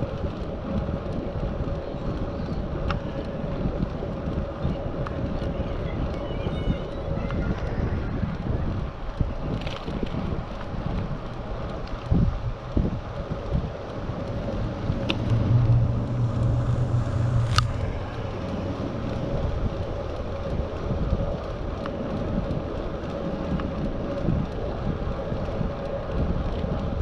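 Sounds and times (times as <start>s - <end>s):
rolling road noise: 0.0s - 27.0s
wind buffeting microphone: 0.0s - 27.0s
low rumble: 9.2s - 27.0s.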